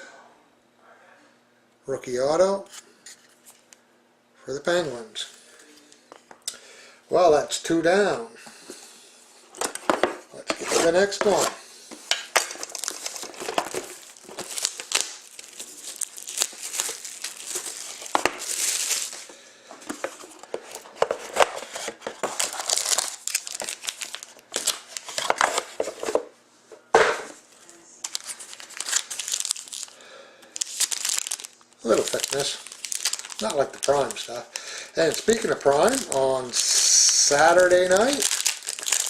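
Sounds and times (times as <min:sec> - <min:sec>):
packaging tearing and crinkling: 0:10.5 - 0:11.5, 0:12.3 - 0:19.3, 0:20.0 - 0:26.0, 0:28.0 - 0:39.0.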